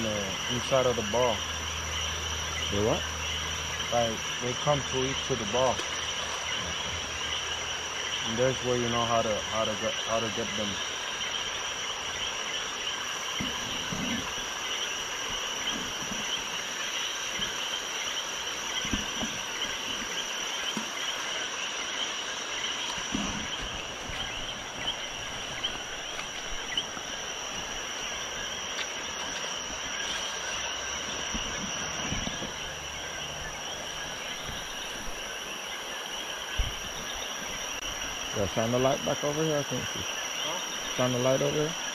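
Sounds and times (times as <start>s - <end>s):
frogs calling: 0.0s - 41.9s
insects buzzing: 0.0s - 41.9s.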